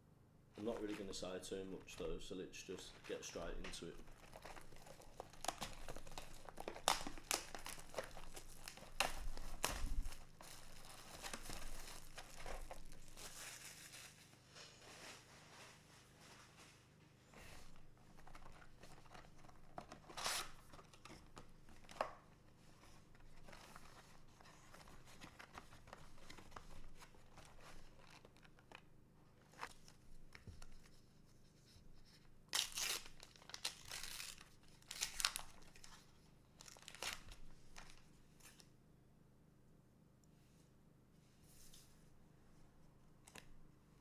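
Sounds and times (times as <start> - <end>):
plastic crinkling: 0.6 - 15.3, 23.0 - 30.9, 32.5 - 38.6
plastic packaging tearing: 3.0 - 14.4, 18.2 - 21.1, 32.5 - 36.0, 36.6 - 38.6.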